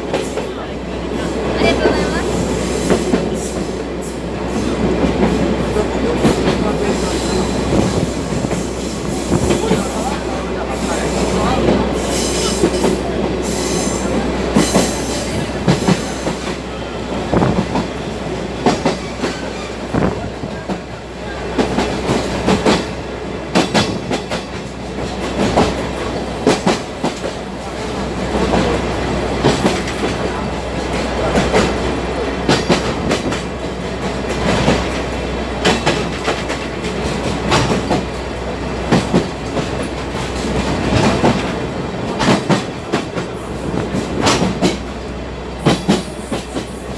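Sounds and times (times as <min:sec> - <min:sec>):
train rumble: 0:00.0 - 0:46.9
train wheels clacking on rails: 0:00.0 - 0:46.9.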